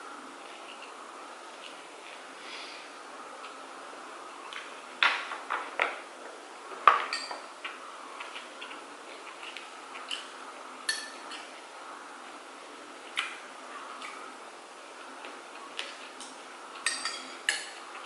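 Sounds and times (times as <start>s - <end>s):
cutlery and dishes clinking: 6.9s - 7.5s, 10.9s - 11.5s, 16.8s - 17.8s.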